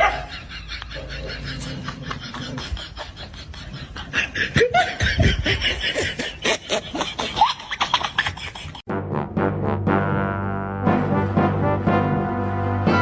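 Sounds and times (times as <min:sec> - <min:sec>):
person giggling: 0:00.2 - 0:08.8.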